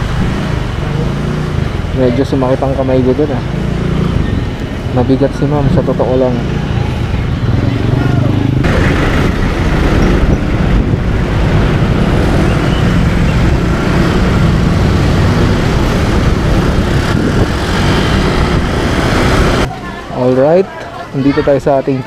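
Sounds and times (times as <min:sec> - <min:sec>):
road noise rushing: 0:00.0 - 0:22.0.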